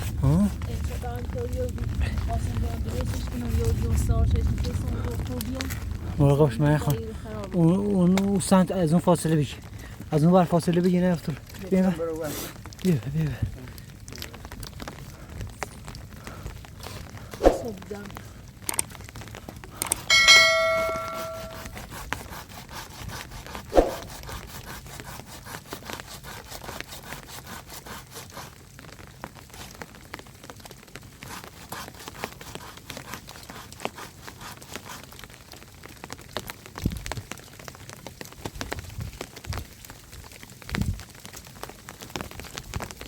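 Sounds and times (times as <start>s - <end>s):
rain pattering: 0.0s - 43.0s
metal object struck ringing: 20.1s - 21.7s.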